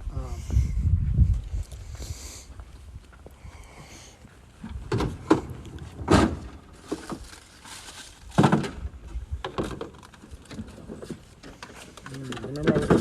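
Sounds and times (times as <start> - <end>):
objects knocking and thudding: 4.6 - 7.3, 8.3 - 13.0.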